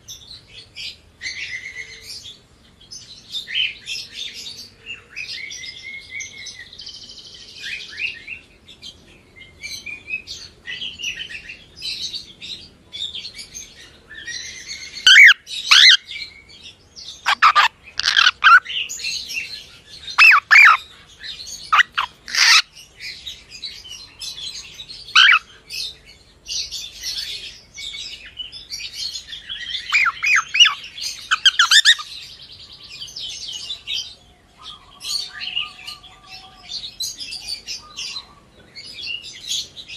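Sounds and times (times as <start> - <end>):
sharp gliding bird calls: 17.2 - 19.0, 20.1 - 20.9, 21.6 - 22.8, 25.1 - 25.6, 29.2 - 32.2
cockatiel chirping: 17.3 - 18.6, 20.2 - 20.8, 21.7 - 22.6, 29.9 - 32.1.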